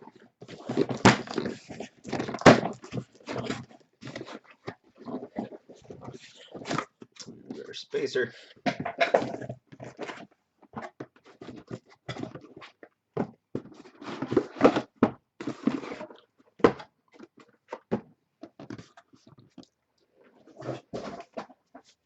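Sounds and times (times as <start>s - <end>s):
cardboard boxes knocking and scraping: 0.4s - 5.5s, 10.8s - 16.9s.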